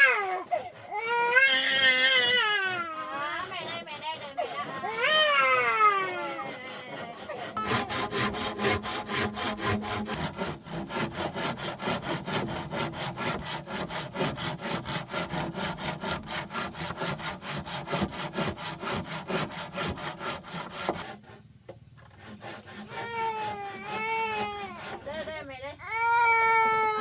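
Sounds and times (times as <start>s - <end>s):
hand saw cutting wood: 0.0s - 21.4s, 22.0s - 25.7s.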